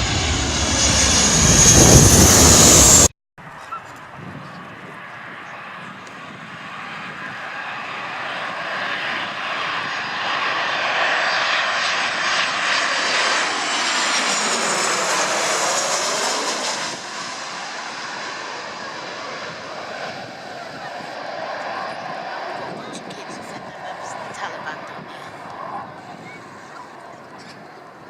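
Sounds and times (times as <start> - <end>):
airliner passing overhead: 0.0 - 28.0.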